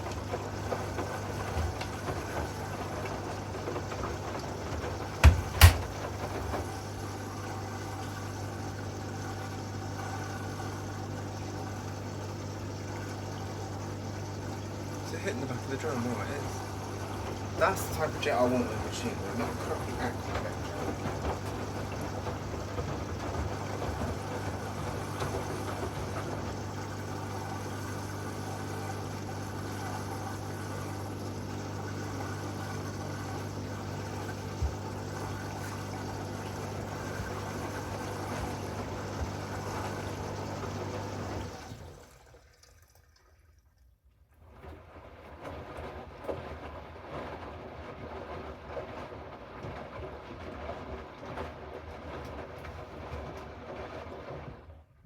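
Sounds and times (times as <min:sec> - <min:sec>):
water spraying and splashing: 0:00.0 - 0:07.1
washing machine pump humming: 0:00.0 - 0:43.6, 0:44.3 - 0:55.0
light knocks: 0:05.2 - 0:06.0.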